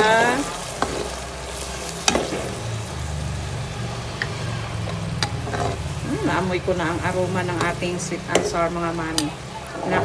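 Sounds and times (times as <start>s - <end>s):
sauce sizzling in a wok: 0.0s - 10.0s
utensil clicking against pan: 4.2s - 5.9s.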